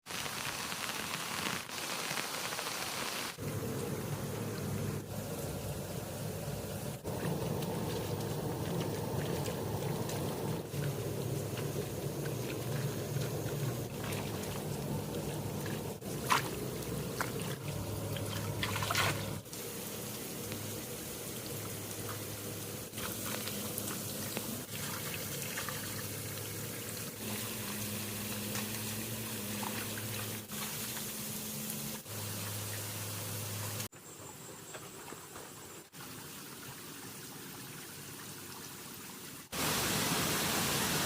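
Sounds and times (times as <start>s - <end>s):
water trickling and flowing: 3.4s - 41.0s
small water splashes: 7.0s - 33.9s.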